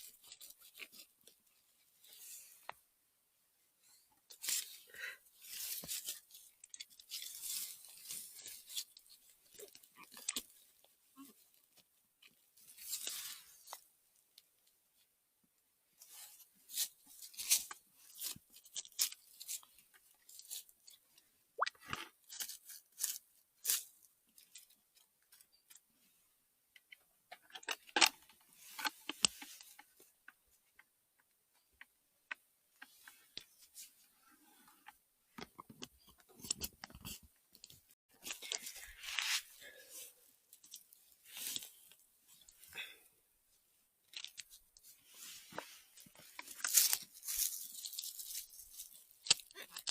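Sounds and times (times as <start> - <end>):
dry leaves and twigs crunching: 5.4 - 10.5, 44.1 - 49.9.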